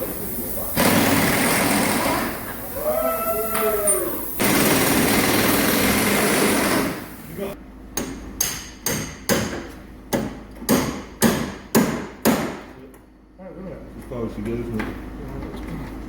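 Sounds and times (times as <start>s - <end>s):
hammer striking metal: 8.0s - 12.7s.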